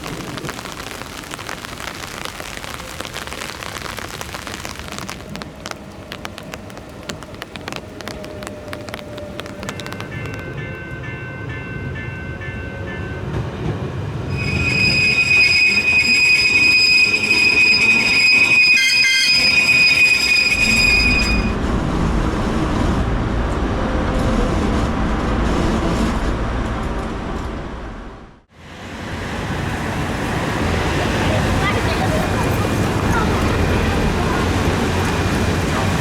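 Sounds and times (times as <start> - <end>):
tram rumbling along track: 5.0 - 36.0
tram wheels squealing on rails: 14.2 - 22.7.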